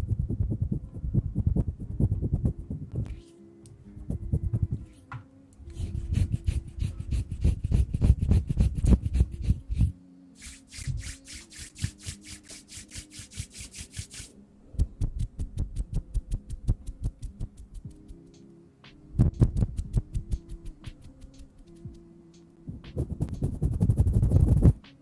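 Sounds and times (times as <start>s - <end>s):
hands patting and tapping: 4.0s - 9.9s, 10.7s - 18.3s, 18.9s - 22.1s, 22.7s - 25.0s.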